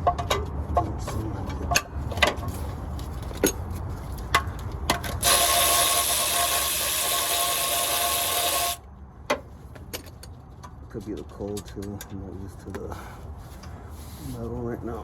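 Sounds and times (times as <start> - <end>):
power tool running on a bolt: 5.2 - 8.8.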